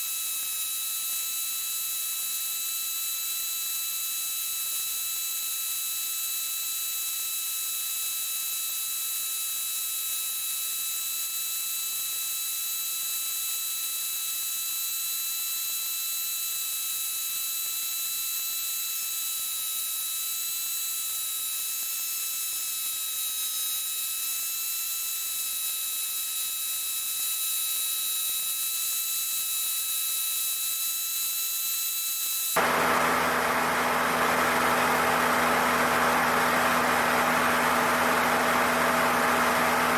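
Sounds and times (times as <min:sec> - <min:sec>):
aircraft engine drone: 0:32.6 - 0:39.9.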